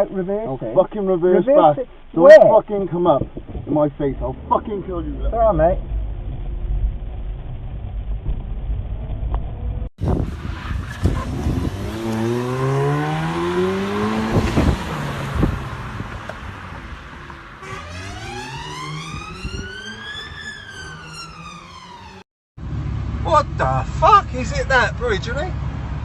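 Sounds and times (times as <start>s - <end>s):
road traffic: 0.0s - 26.0s
car engine accelerating: 3.5s - 26.0s
long rising and falling tone: 4.2s - 22.3s.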